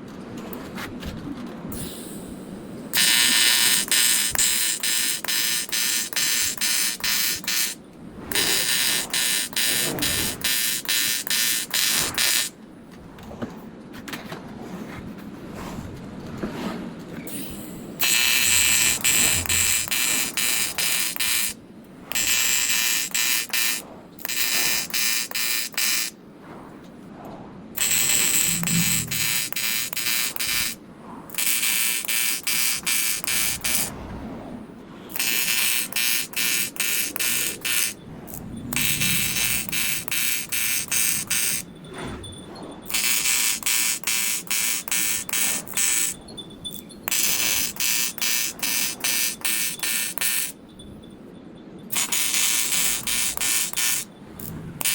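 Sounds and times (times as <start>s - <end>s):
welding arc buzzing: 2.9s - 12.6s, 17.3s - 26.2s, 27.8s - 33.9s, 35.1s - 41.7s, 42.9s - 50.6s, 51.9s - 54.9s.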